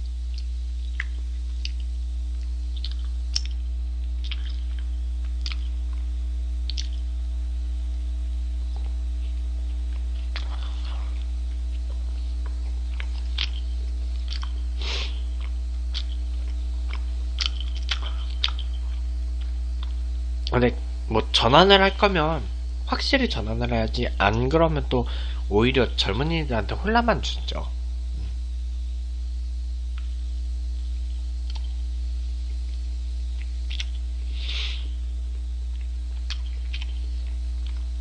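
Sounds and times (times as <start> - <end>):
man chewing with mouth smacks: 0.0 - 7.2, 8.6 - 20.6, 30.9 - 38.0
low hum: 0.0 - 38.0.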